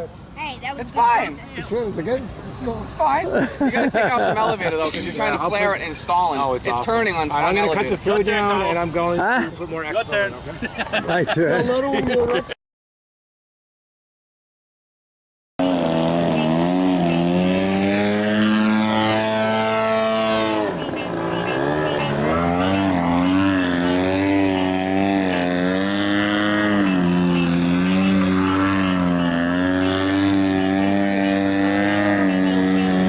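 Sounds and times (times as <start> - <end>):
model airplane engine and propeller: 15.6 - 33.0.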